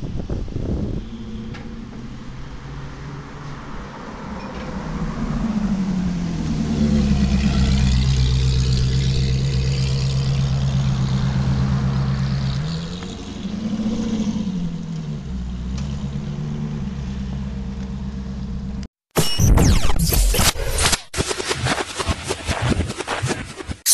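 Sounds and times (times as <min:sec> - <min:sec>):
sports car engine revving: 0:04.8 - 0:18.8.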